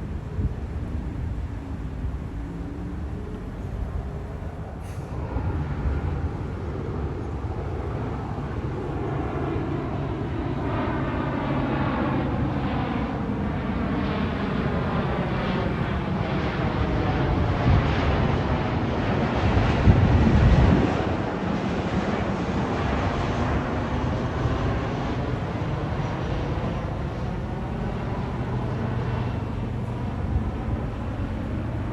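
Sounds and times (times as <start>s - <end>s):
jet airliner flying overhead: 0.0s - 31.9s.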